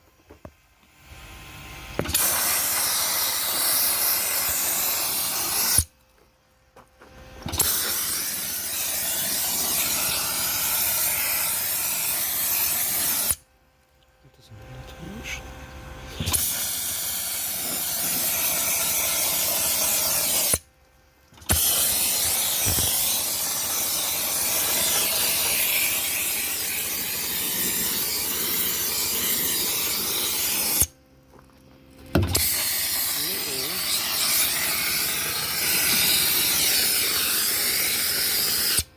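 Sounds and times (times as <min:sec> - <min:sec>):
compressed air hissing: 0:01.9 - 0:05.9, 0:07.5 - 0:13.4, 0:16.1 - 0:20.6, 0:21.4 - 0:31.0, 0:32.2 - 0:38.9.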